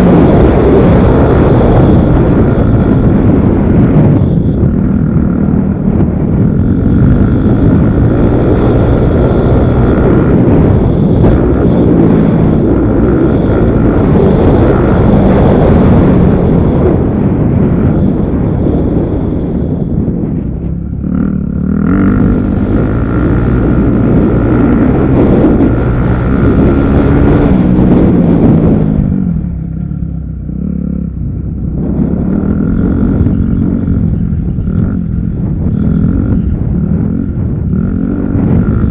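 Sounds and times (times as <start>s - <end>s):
motorcycle engines revving: 0.0s - 38.9s.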